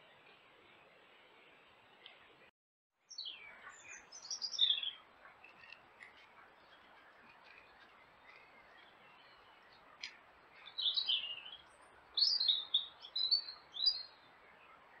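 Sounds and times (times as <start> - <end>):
faint chirps of other birds: 3.0 - 15.0
songbird singing falling notes: 3.1 - 14.2.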